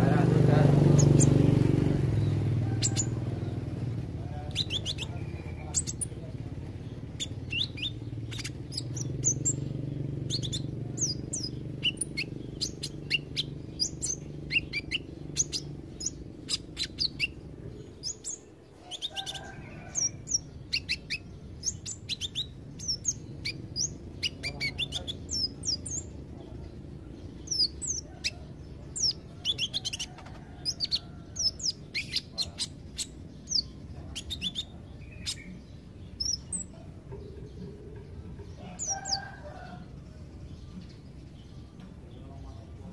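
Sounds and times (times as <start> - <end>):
bird chirping high and thin: 0.8 - 1.4, 4.4 - 6.2, 7.0 - 19.3, 19.9 - 26.2.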